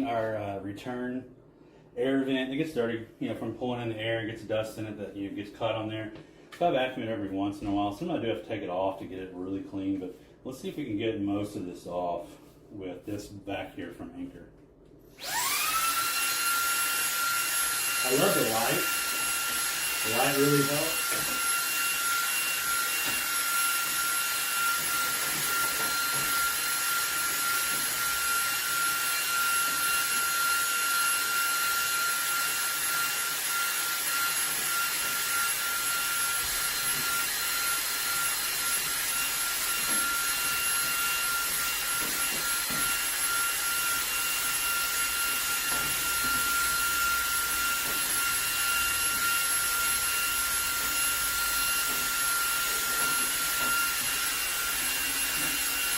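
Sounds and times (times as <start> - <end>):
vacuum cleaner whining: 15.0 - 55.9.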